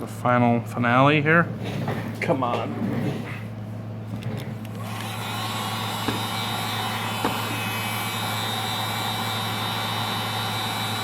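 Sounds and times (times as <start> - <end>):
heat gun blowing with whine: 4.2 - 11.0.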